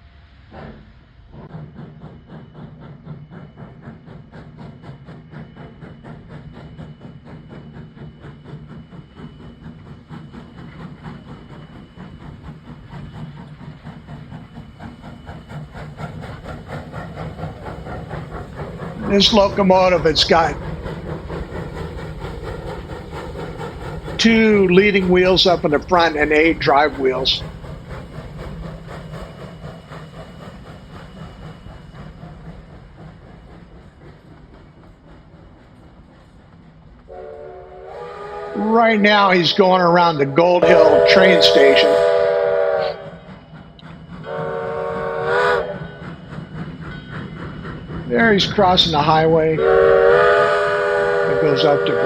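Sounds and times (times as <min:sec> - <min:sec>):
steam locomotive chugging: 0:00.0 - 0:52.0.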